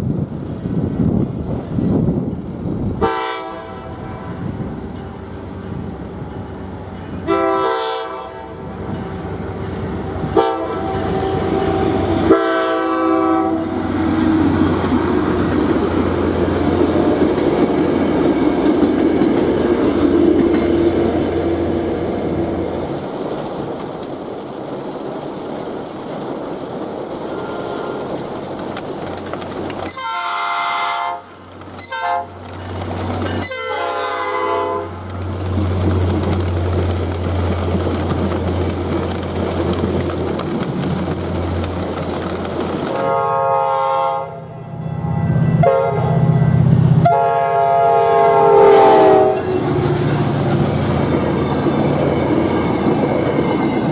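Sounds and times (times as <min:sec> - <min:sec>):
train rumble and wheel clatter: 0:00.0 - 0:53.9
train horn blasts: 0:03.0 - 0:04.4, 0:07.2 - 0:08.8, 0:10.1 - 0:13.9, 0:27.3 - 0:28.2, 0:29.9 - 0:32.4, 0:33.4 - 0:35.1, 0:43.0 - 0:49.7.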